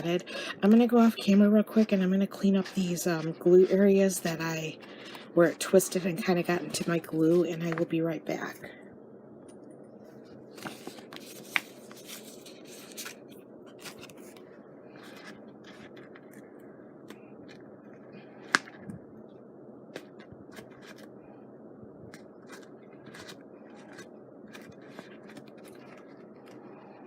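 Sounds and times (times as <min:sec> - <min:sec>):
low background hum: 0:00.0 - 0:27.0
hands working craft materials: 0:22.1 - 0:27.0.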